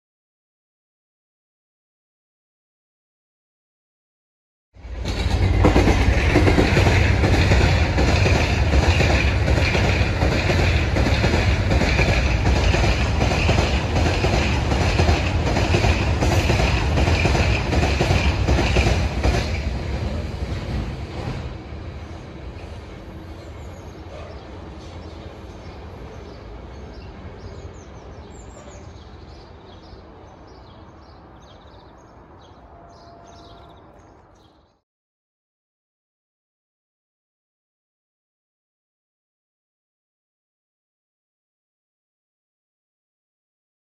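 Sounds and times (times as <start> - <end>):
train wheels clattering over rail joints: 5.0 - 19.8.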